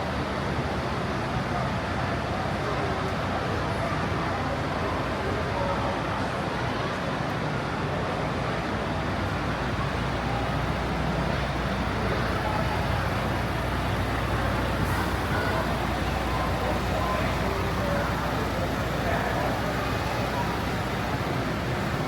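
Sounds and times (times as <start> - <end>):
faint distant voices: 0.1 - 22.0
vehicle engine running: 10.1 - 22.0.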